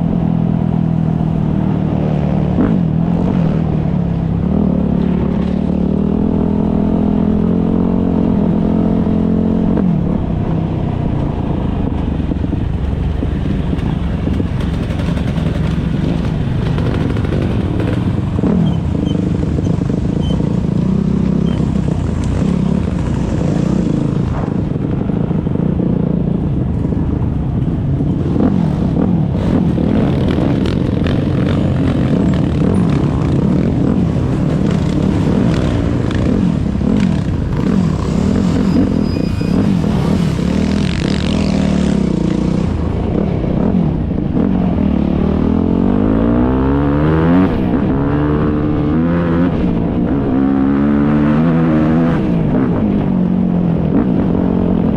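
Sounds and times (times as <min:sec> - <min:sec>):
motocross bike engines revving: 0:27.8 - 0:52.8.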